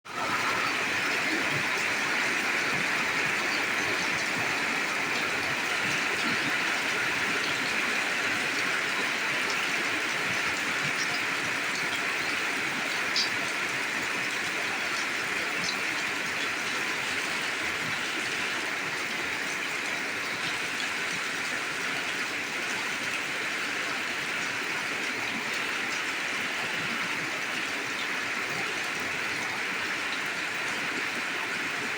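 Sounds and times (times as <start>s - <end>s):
heavy rain falling: 0.1s - 31.9s.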